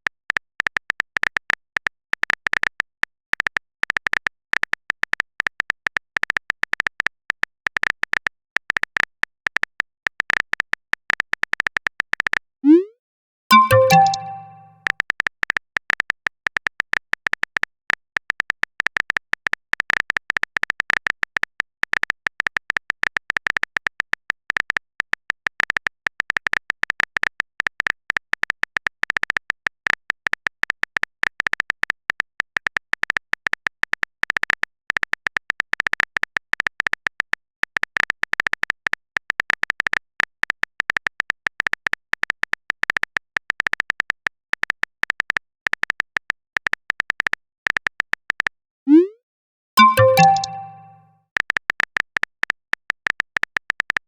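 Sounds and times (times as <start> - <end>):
keyboard typing clicks: 13.5 - 14.7, 49.8 - 51.0.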